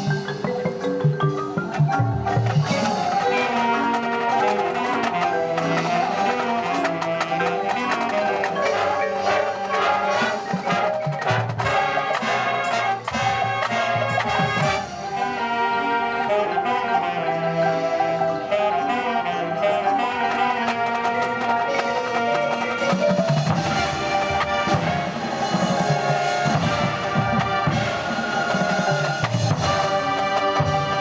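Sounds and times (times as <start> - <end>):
drumline percussion: 0.0 - 31.0
brass sustaining chords: 2.9 - 31.0.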